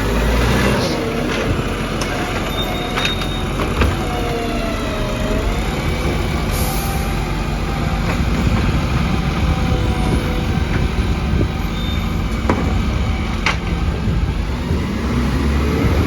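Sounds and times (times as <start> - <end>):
diesel engine running: 0.0 - 16.0
air hiss: 6.5 - 7.4.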